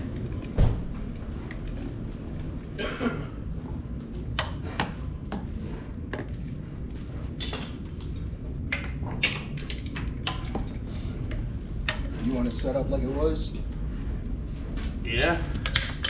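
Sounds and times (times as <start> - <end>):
steady low rumble: 0.0 - 16.0
tools clicking and clanking: 7.4 - 12.6.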